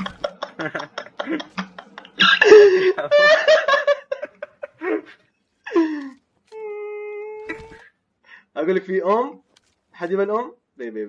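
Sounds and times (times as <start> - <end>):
person laughing loudly: 0.0 - 5.9.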